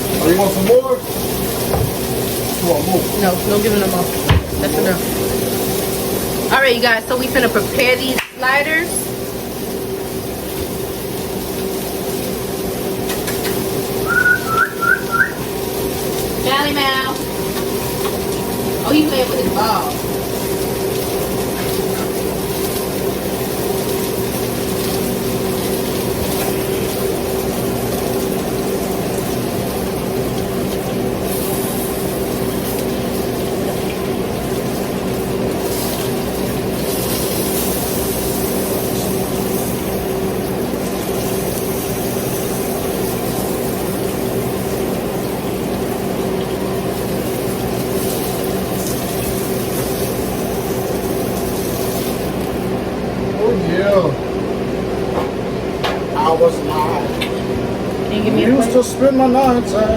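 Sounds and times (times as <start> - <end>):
kitchen appliance fan humming: 0.0 - 59.9.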